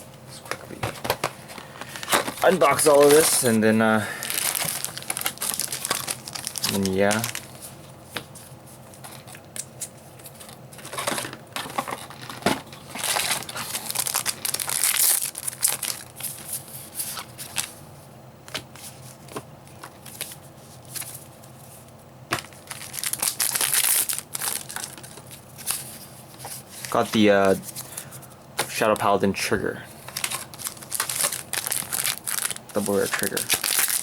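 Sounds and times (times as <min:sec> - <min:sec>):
cards rustling: 0:00.3 - 0:17.8, 0:22.3 - 0:34.0
foil packs crinkling and tearing: 0:01.0 - 0:07.7, 0:10.3 - 0:17.8, 0:22.4 - 0:29.2, 0:30.0 - 0:34.0.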